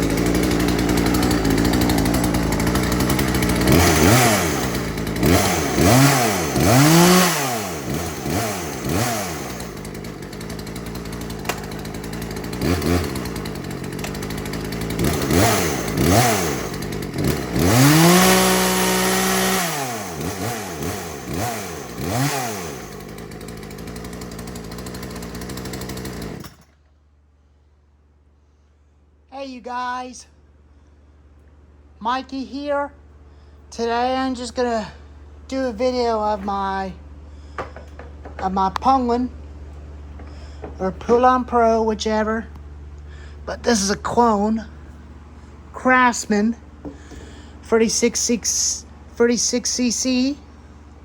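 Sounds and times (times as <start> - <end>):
chainsaw idling and revving: 0.0 - 26.9, 33.3 - 51.0.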